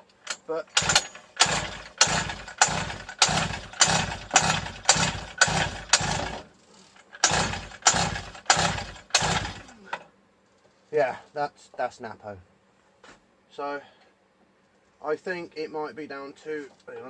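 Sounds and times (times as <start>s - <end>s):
recoil starter pulls: 0.0s - 10.0s
small engine turning over: 0.2s - 9.8s.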